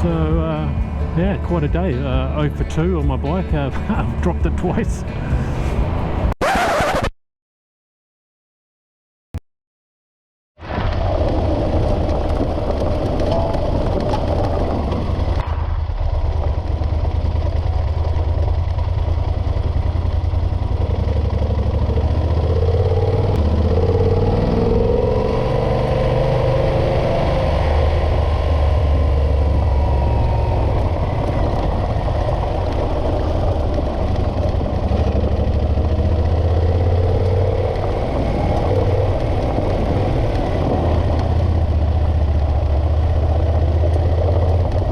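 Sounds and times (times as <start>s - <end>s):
motorcycle engine running: 0.0s - 6.3s, 11.0s - 44.9s
wind rumble on microphone: 10.6s - 20.9s, 23.1s - 44.9s.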